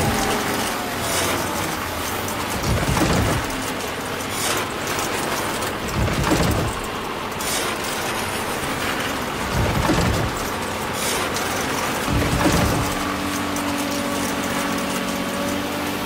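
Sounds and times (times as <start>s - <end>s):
soil crusher grinding: 0.0s - 16.0s
heavy low rumble: 2.4s - 3.8s, 5.8s - 6.9s, 9.4s - 10.6s, 12.1s - 13.2s.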